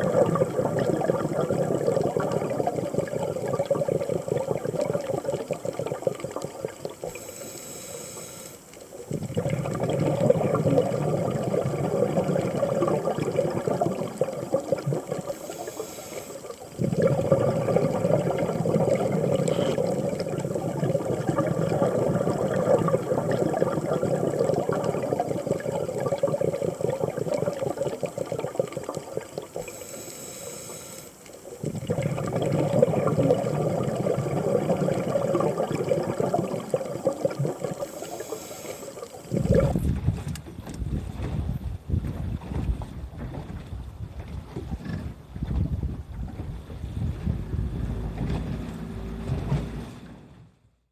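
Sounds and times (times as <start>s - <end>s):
exhaust bubbling underwater: 0.0s - 7.9s, 8.8s - 50.3s
regulator hissing inhale: 7.1s - 8.8s, 15.3s - 16.6s, 19.3s - 20.0s, 29.6s - 31.6s, 37.8s - 39.4s.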